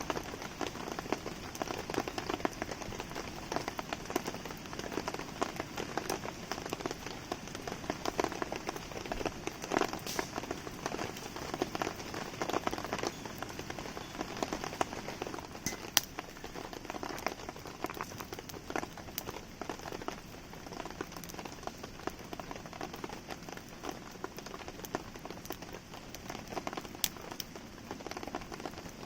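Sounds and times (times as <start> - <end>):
campfire crackling: 0.0 - 29.0
rain pattering: 0.0 - 29.0
sharp fire snap: 8.7 - 12.2, 15.6 - 16.6, 27.0 - 27.6.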